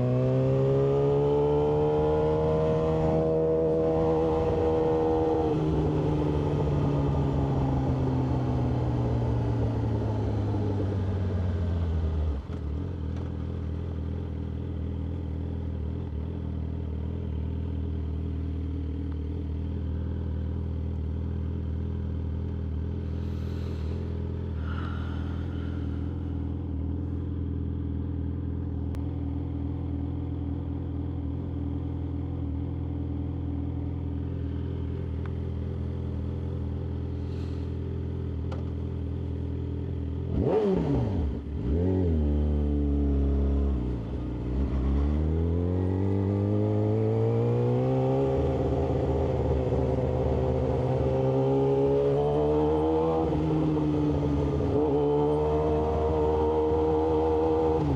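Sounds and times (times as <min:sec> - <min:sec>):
motorcycle engine slowing to idle: 0:08.0 - 0:40.3.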